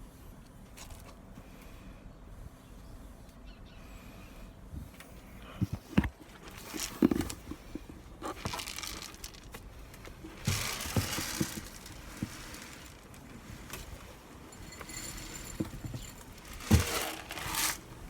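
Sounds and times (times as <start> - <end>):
material crinkling and rustling: 5.6 - 18.0.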